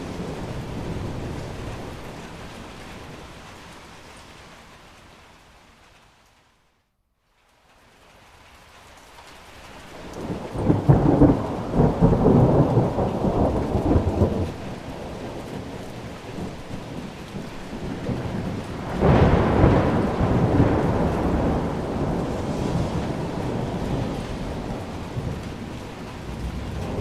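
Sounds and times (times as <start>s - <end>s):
thunder rumbling: 0.0s - 3.3s, 10.0s - 27.0s
steady rain: 0.0s - 27.0s.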